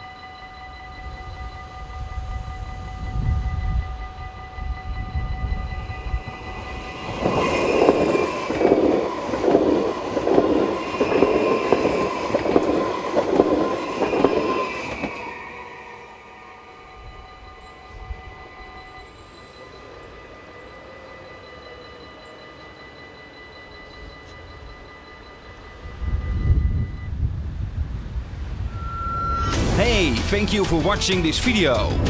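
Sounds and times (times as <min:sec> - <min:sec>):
level-crossing bells ringing: 0:00.0 - 0:27.2
train clattering over rails: 0:04.4 - 0:16.0.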